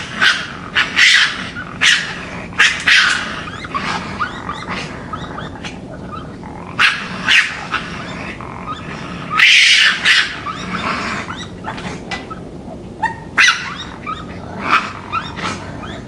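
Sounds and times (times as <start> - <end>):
raccoon growling and snarling: 0.0 - 16.0.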